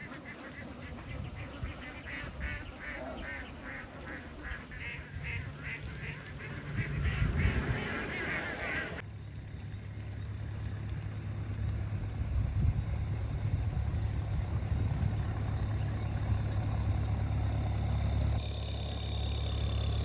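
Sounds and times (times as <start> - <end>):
flock of ducks quacking: 0.0 - 9.0
steady low hum: 0.0 - 20.0
low rumble: 0.8 - 20.0.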